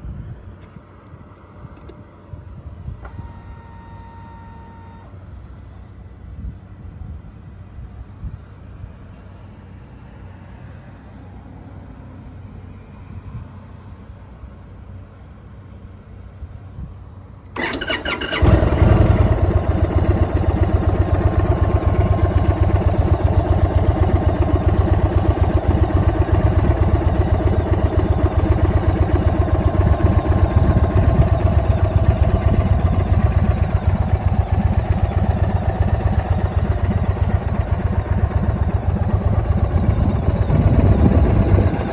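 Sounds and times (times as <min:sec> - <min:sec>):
motorcycle engine idling: 0:17.6 - 0:41.9
motorcycle starter cranking: 0:17.6 - 0:41.9.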